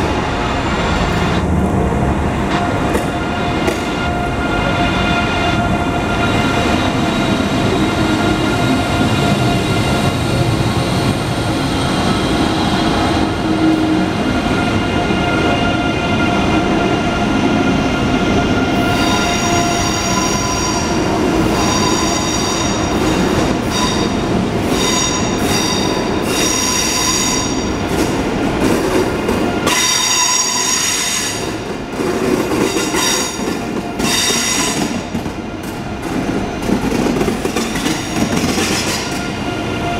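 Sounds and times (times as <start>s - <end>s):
train rumbling: 0.0s - 39.9s
train wheels squealing: 18.6s - 27.8s, 29.6s - 31.5s, 32.6s - 35.0s.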